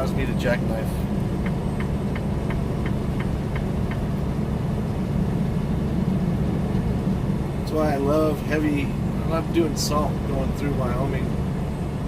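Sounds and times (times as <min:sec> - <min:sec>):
road noise: 0:00.0 - 0:12.0
truck diesel engine drone: 0:00.0 - 0:12.0
faint regular ticking: 0:01.2 - 0:04.1.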